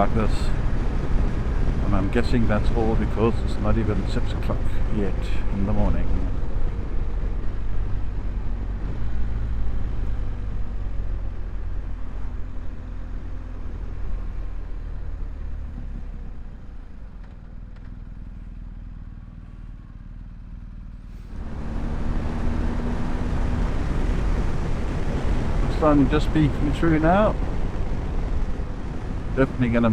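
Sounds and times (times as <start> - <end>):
road and wind noise: 0.0 - 29.9
motorcycle engine running: 15.7 - 29.9.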